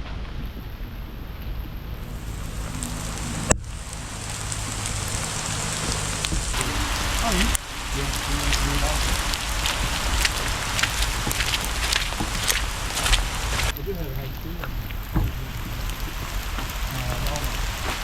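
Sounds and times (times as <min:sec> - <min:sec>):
steady rain falling: 0:00.0 - 0:18.0
rain drop ticks: 0:00.1 - 0:18.0.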